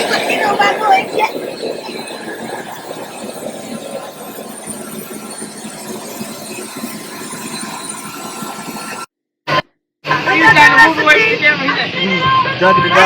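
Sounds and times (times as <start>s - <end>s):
faint steady tones: 0.0s - 9.1s
jet cabin engine and air rush: 0.0s - 9.1s.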